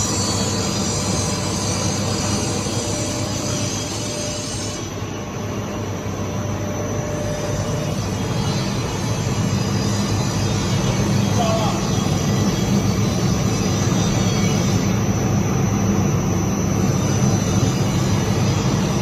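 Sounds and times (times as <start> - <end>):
furnace machinery humming: 0.0 - 19.0.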